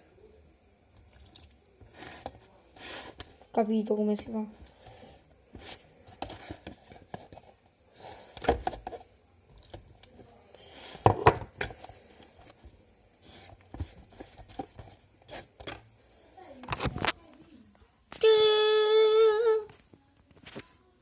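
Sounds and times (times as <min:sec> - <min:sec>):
straw stirring in plastic container: 0:00.9 - 0:03.6, 0:04.5 - 0:15.9.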